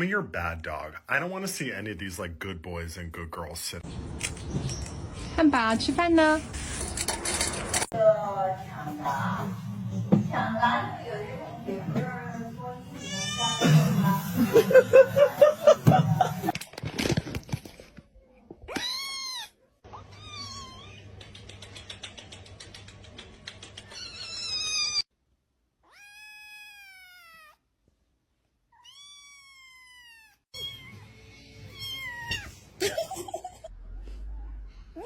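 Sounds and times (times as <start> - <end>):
cat meowing: 18.7 - 21.1, 25.8 - 27.6, 28.7 - 32.6.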